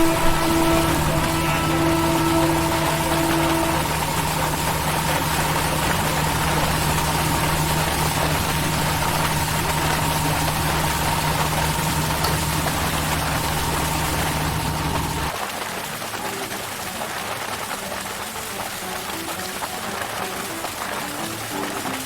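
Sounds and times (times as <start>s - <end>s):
fire engine diesel running: 0.0s - 15.3s
steady high whine: 0.0s - 15.3s.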